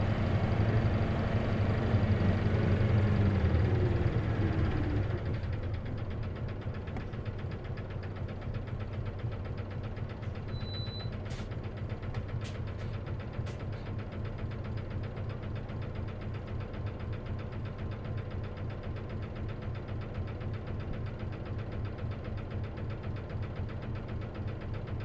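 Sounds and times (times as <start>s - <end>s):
bus diesel engine rattling: 0.0s - 25.0s.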